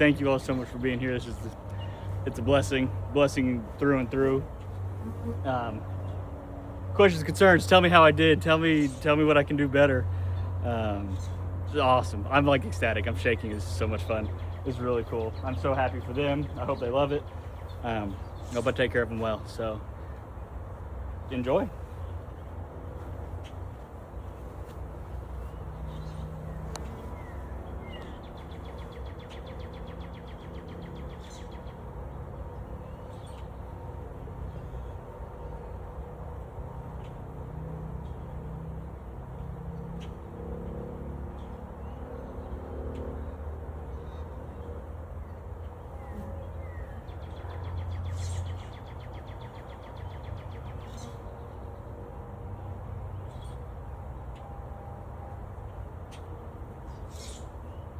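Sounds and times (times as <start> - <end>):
songbird chirping and trilling: 10.1 - 20.3, 23.4 - 33.8, 41.4 - 51.7, 55.7 - 57.9.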